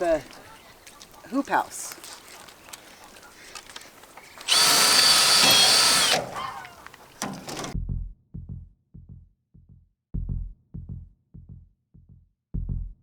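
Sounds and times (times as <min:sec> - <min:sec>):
power drill drilling into wood: 0:04.4 - 0:07.8
music with slow thumping beat: 0:07.8 - 0:13.0.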